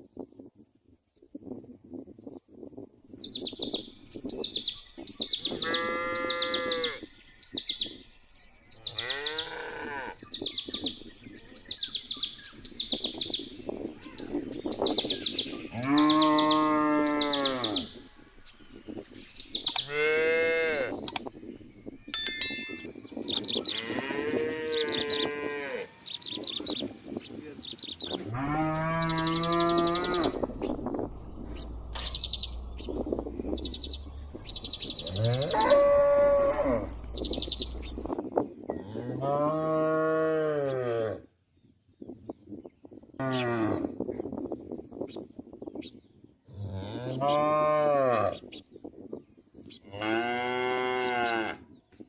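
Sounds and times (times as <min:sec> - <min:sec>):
cattle mooing: 0:28.2 - 0:30.6, 0:35.0 - 0:37.0.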